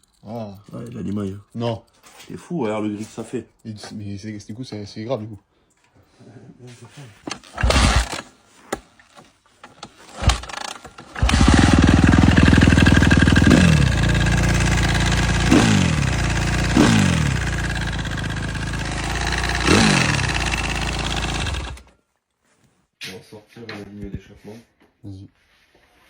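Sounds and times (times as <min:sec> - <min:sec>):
dirt bike engine cranking: 0:07.3 - 0:08.3, 0:09.6 - 0:21.9
dirt bike engine running: 0:10.2 - 0:21.9.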